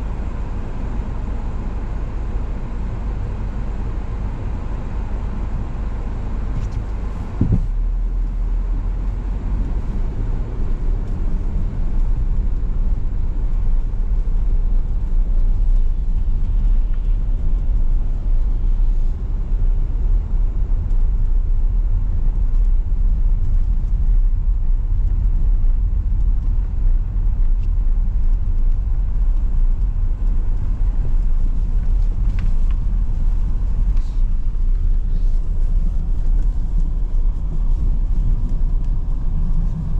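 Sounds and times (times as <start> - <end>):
car engine and road noise: 0.0 - 39.9
brief thump: 7.4 - 7.7.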